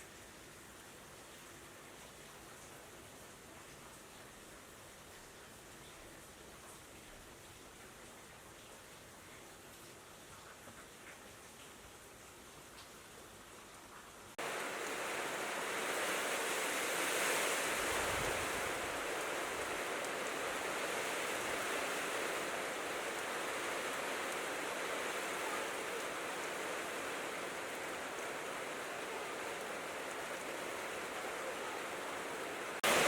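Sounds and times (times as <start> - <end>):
heavy rain falling: 14.4 - 33.0.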